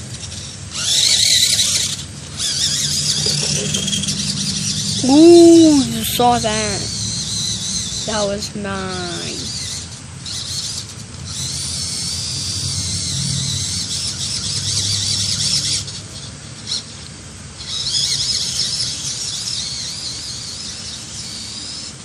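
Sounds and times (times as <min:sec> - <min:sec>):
low gear hum: 0:00.0 - 0:15.9
electric motor whining: 0:00.0 - 0:22.0.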